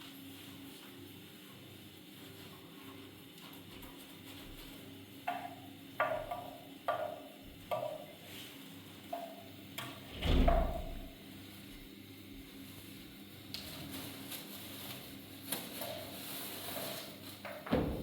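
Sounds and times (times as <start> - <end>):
heavy deep thump: 10.1 - 11.1.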